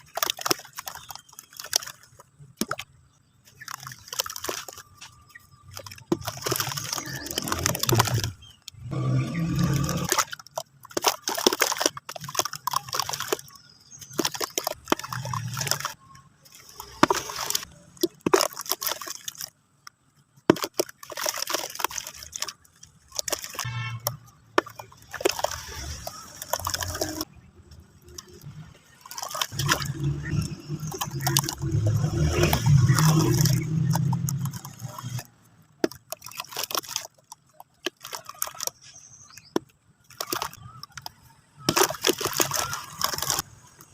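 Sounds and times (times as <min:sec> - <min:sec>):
sand-cement chunks crumbling: 0:00.0 - 0:19.6, 0:20.4 - 0:27.3, 0:28.1 - 0:43.9.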